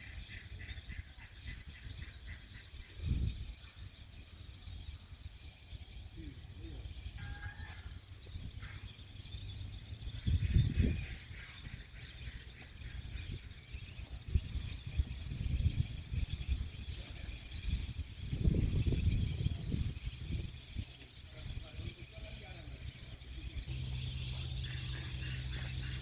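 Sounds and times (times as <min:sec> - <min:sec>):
steady outdoor hiss: 0:00.0 - 0:26.0
waterbird calls: 0:06.4 - 0:14.2, 0:20.6 - 0:26.0.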